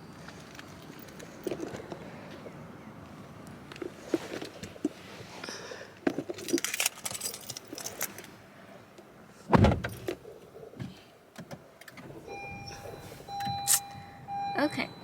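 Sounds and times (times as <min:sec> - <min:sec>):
car keys jangling: 0:06.1 - 0:08.4, 0:11.8 - 0:14.2
car electronic warning chime: 0:12.3 - 0:15.0.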